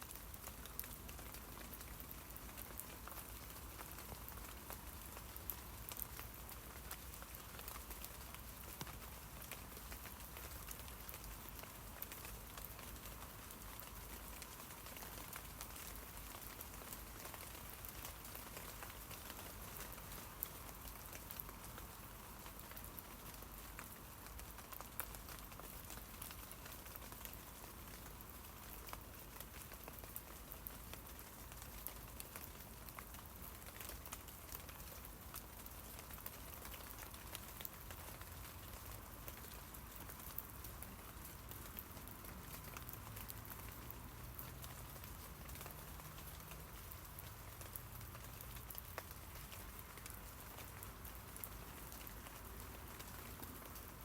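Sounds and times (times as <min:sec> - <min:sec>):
rain on tree leaves: 0:00.0 - 0:54.0.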